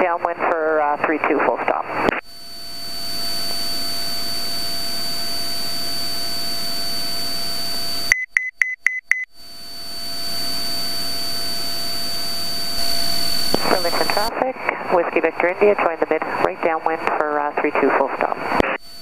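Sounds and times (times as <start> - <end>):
faint high whine: 2.0 - 8.2, 9.3 - 19.0
high-pitched electronic beeps: 8.1 - 9.3.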